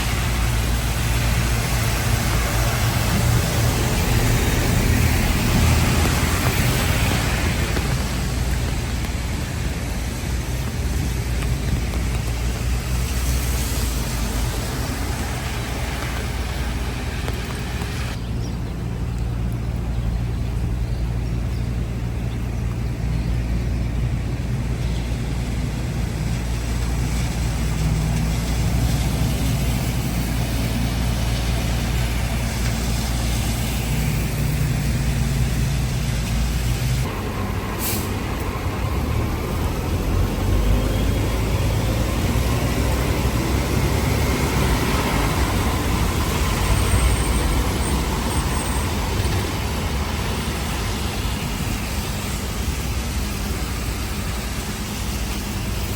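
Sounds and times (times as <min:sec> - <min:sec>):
heavy vehicle engine humming: 0:00.0 - 0:55.9
short hiss: 0:37.8 - 0:38.1.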